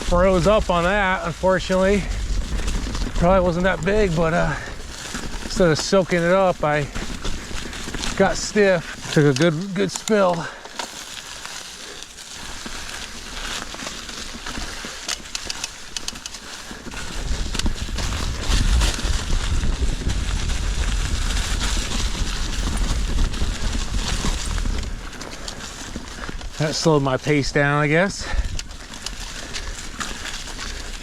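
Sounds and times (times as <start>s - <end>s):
wind rumble on microphone: 0.0s - 9.0s, 16.9s - 26.6s
bike rolling over rough trail: 0.0s - 31.0s.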